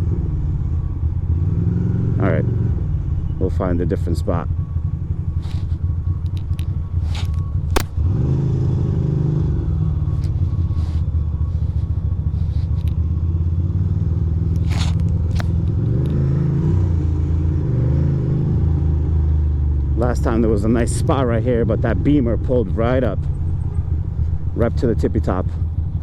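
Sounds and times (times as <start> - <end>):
motorcycle engine running: 0.0 - 26.0
sharp clicks: 6.2 - 8.1.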